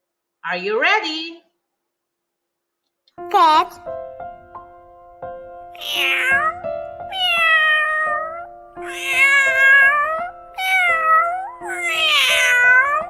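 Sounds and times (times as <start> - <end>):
cat meowing: 5.7 - 13.0.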